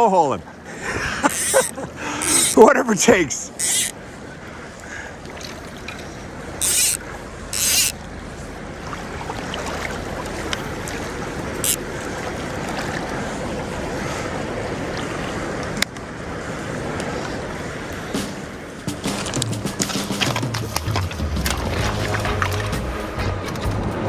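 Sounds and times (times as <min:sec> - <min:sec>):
river current rushing: 0:00.0 - 0:24.0
short loud hissing: 0:01.2 - 0:02.6.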